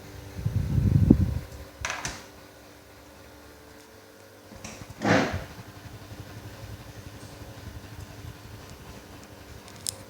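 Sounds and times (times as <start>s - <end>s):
ceiling fan motor humming: 0.0s - 10.0s.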